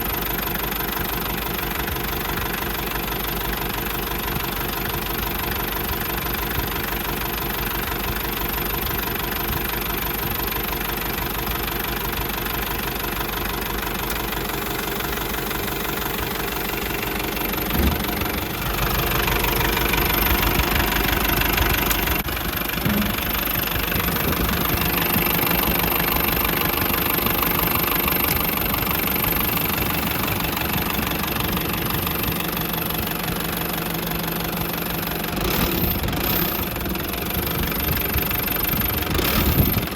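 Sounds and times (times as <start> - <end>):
truck diesel engine running: 0.0 - 39.9
short knock: 22.8 - 23.3.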